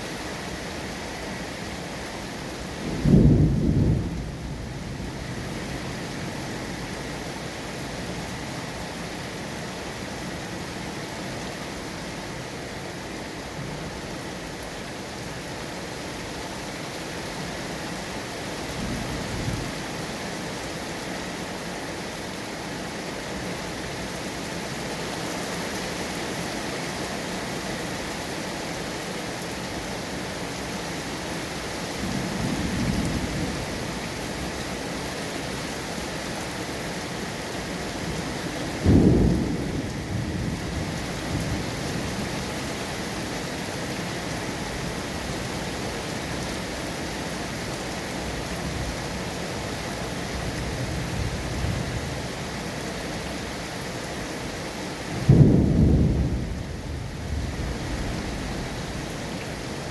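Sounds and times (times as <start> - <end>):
heavy rain falling: 0.0 - 59.9
thunder rumbling: 2.9 - 4.7, 38.8 - 41.6, 55.2 - 58.9.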